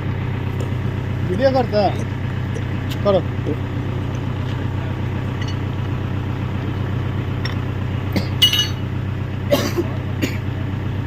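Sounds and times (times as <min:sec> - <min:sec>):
diesel engine idling: 0:00.0 - 0:11.0
metal clinks: 0:05.3 - 0:05.7, 0:08.3 - 0:08.9.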